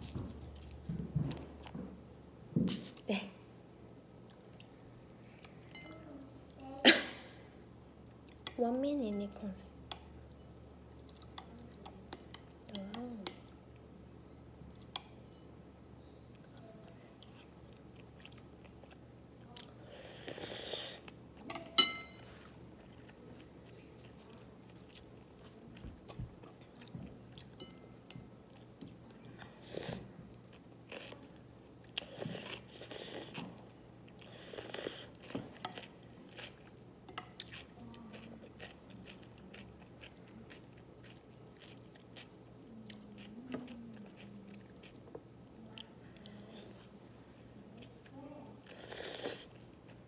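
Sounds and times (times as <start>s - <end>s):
wet chewing and crunching: 31.9s - 45.2s.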